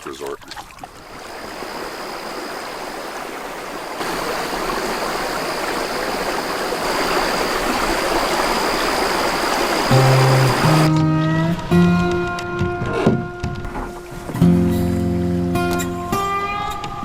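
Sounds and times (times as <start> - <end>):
stream water rushing: 0.0 - 10.9.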